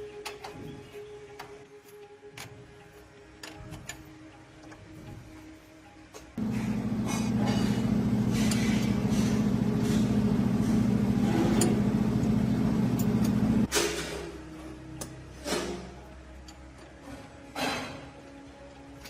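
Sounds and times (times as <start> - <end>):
machine motor humming: 6.4 - 13.7.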